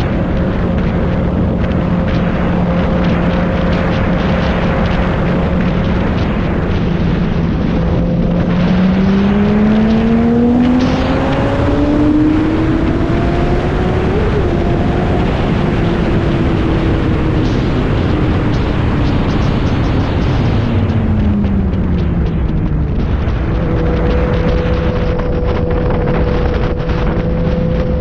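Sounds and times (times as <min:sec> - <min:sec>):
motorcycle engine accelerating: 0:00.0 - 0:28.0
wind rush on microphone: 0:00.0 - 0:28.0.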